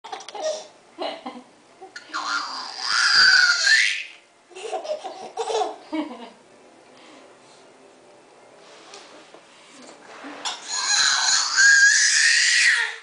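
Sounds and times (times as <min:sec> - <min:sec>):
loud vocal squeal: 0:10.5 - 0:12.8.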